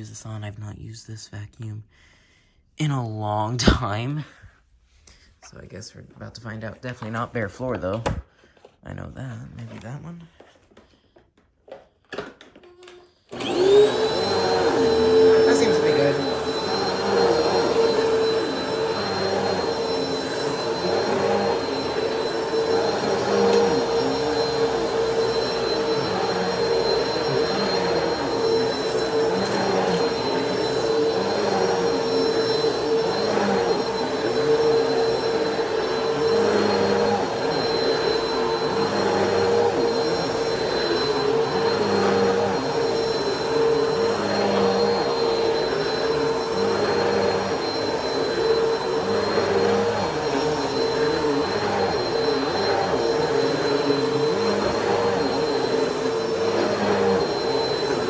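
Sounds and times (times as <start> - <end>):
vacuum cleaner on carpet: 11.7 - 58.0.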